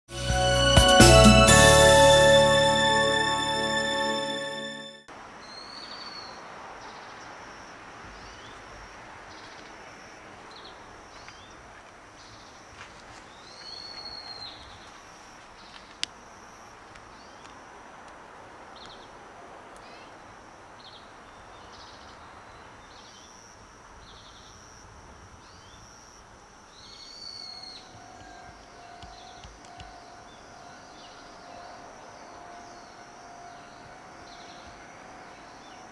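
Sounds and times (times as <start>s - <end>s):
steady background hiss: 0.4s - 35.9s
bird chirps: 26.8s - 35.9s.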